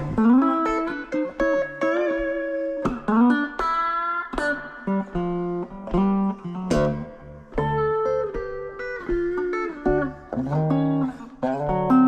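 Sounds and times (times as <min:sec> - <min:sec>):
plucked guitar notes: 0:00.0 - 0:12.0.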